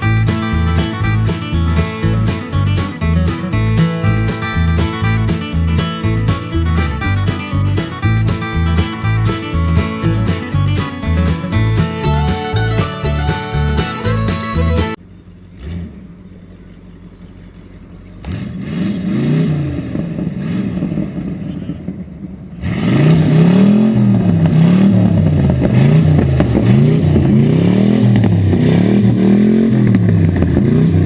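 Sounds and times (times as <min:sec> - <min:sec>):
background music: 0:00.0 - 0:15.0
engine revving: 0:15.6 - 0:16.2, 0:18.2 - 0:21.6, 0:22.6 - 0:31.0.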